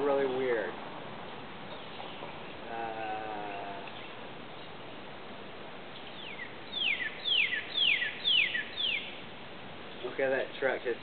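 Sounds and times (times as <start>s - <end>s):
faint drawn-out bird call: 1.7s - 4.7s, 6.0s - 9.2s.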